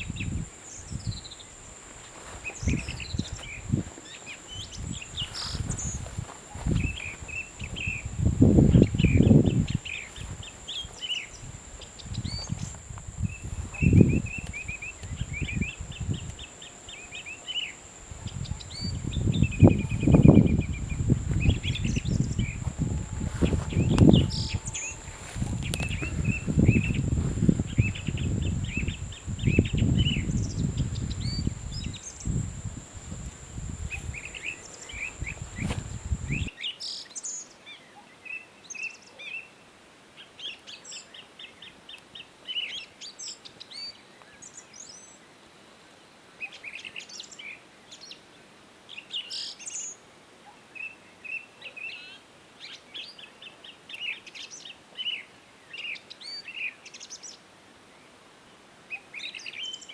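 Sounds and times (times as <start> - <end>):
small birds chirping: 0.0 - 37.5
steady high whine: 4.5 - 36.5.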